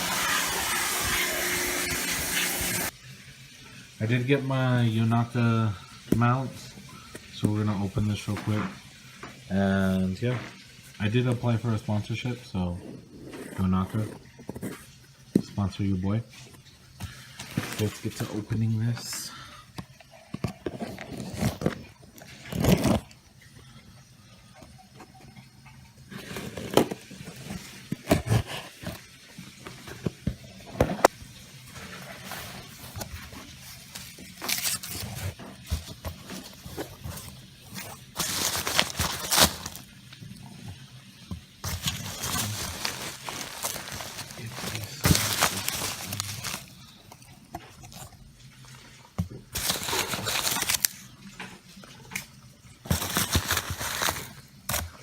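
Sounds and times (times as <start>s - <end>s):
packaging scraping and crackling: 17.4s - 18.4s, 20.4s - 23.2s, 31.8s - 39.9s, 41.6s - 48.1s, 49.5s - 51.1s, 52.9s - 55.0s.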